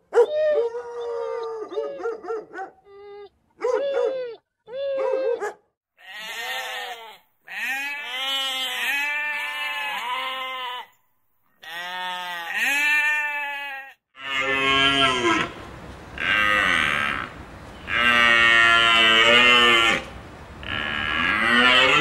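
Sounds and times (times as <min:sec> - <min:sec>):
livestock bleating: 0:06.0 - 0:11.0, 0:11.6 - 0:15.6, 0:16.2 - 0:22.0.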